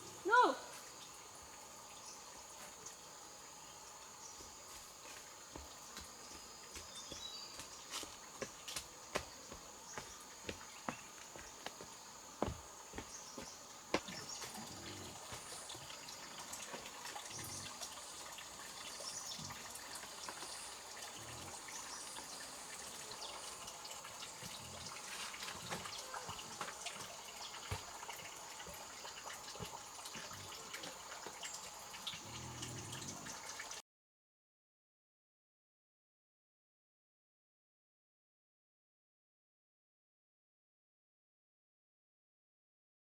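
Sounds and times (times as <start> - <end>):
water trickling and dripping: 0.0 - 33.8.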